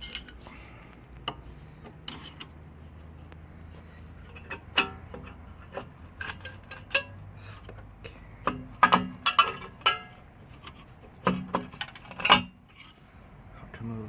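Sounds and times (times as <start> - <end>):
loud ringing metallic clink: 0.0 - 0.8, 4.5 - 5.1
metal clicks and clinks of tools: 0.0 - 1.4, 4.3 - 5.4, 6.2 - 7.2.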